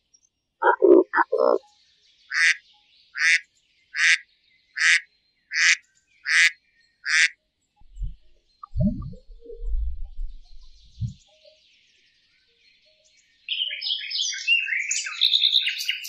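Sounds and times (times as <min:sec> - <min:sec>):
faint low thumps: 0:07.8 - 0:11.2.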